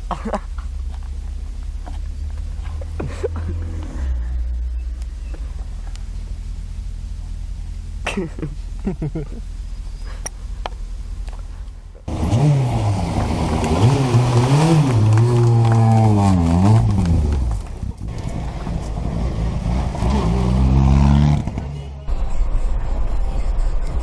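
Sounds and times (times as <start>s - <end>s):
rally car engine revving: 12.1s - 24.0s.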